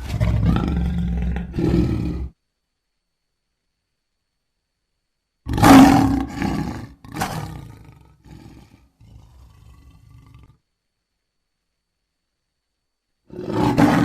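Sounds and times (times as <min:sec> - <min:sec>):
lion roaring: 0:00.0 - 0:02.4, 0:05.5 - 0:10.6, 0:13.3 - 0:14.0
low lion grunts: 0:00.0 - 0:02.4, 0:05.5 - 0:10.6, 0:13.3 - 0:14.0.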